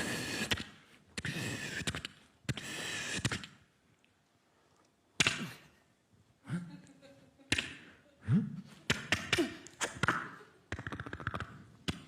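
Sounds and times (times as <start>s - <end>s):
sharp mouth clicks: 0.4s - 4.2s, 8.9s - 12.0s.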